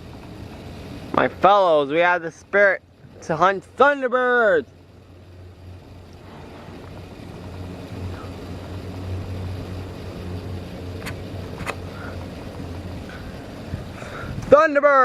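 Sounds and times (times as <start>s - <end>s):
low engine drone: 0.0s - 15.0s
sharp clicks: 11.0s - 12.3s.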